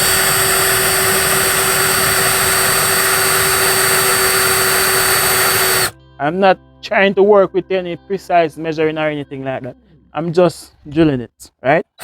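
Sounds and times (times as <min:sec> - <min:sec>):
drill boring into wood: 0:00.0 - 0:05.9.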